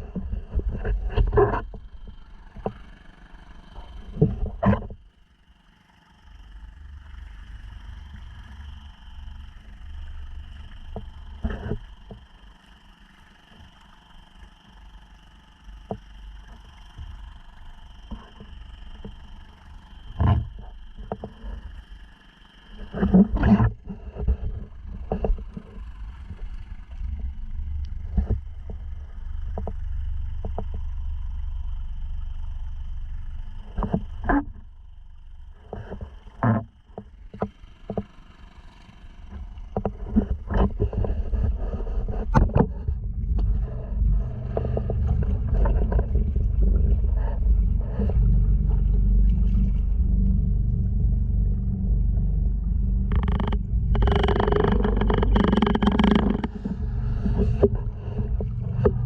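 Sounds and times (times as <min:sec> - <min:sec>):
outboard motor droning: 0:00.0 - 0:59.0
water slapping against hull: 0:38.9 - 0:59.0.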